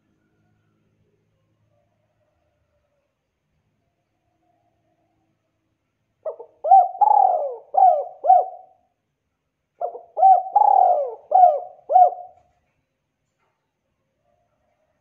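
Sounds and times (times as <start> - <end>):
dove cooing: 6.2 - 8.8, 9.8 - 12.5.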